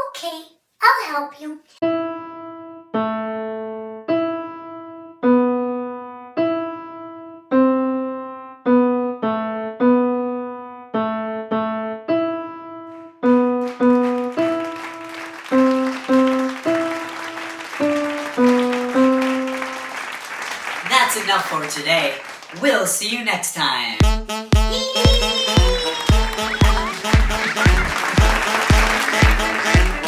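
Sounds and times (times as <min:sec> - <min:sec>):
piano notes melody: 0:01.8 - 0:20.1.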